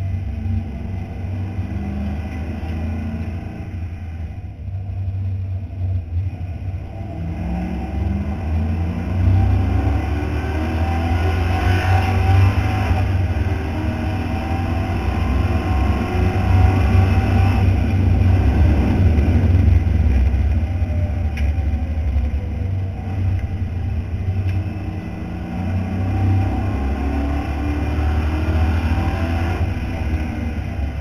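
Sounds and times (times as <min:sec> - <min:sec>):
race car engine revving: 0:06.8 - 0:31.0.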